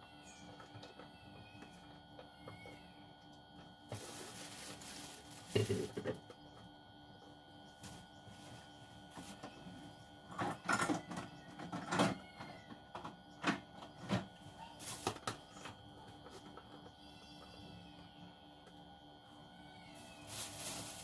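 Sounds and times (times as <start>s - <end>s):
rustling and knocking in a kitchen: 3.6s - 6.7s, 7.6s - 17.0s, 19.9s - 21.0s.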